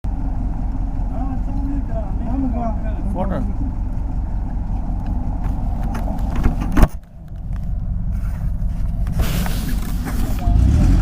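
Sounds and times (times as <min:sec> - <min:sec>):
motorcycle engine rumble: 0:00.1 - 0:11.0.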